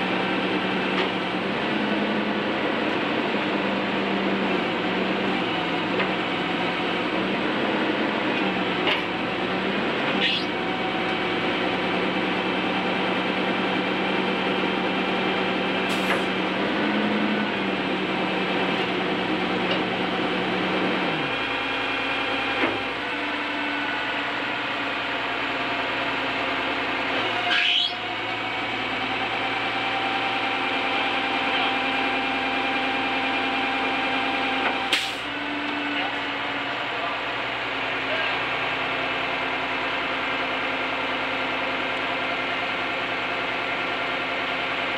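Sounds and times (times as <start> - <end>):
truck mechanical hum: 0.0 - 44.9
sweeping squeaks: 27.4 - 28.1.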